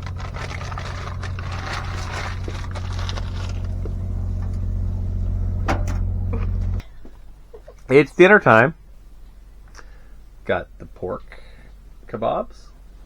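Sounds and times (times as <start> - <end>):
low motor hum: 0.0 - 7.4.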